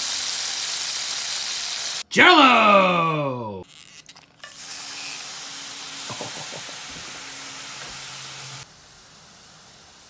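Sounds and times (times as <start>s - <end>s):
jelly sizzling in a skillet: 0.0s - 2.0s, 4.4s - 10.0s.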